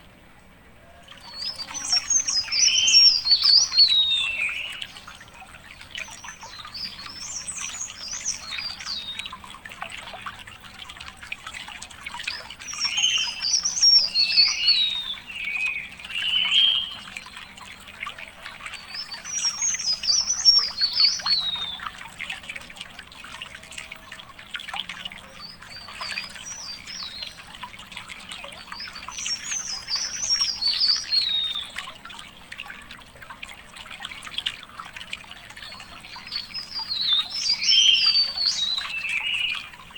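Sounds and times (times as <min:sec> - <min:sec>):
songbird singing warbled phrases: 0:01.2 - 0:09.5, 0:12.1 - 0:17.7, 0:18.6 - 0:22.1, 0:25.2 - 0:32.0, 0:35.3 - 0:39.9.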